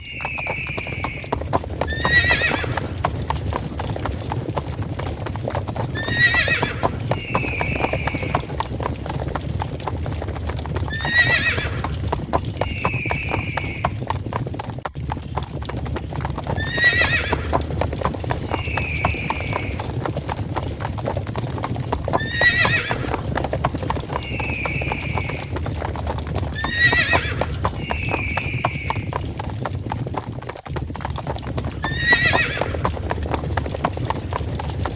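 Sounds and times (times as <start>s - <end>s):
horse whinnying: 0.0s - 4.3s, 5.6s - 8.8s, 10.7s - 14.1s, 16.4s - 20.1s, 22.0s - 29.3s, 31.6s - 33.2s
galloping hoofbeats: 0.0s - 34.9s.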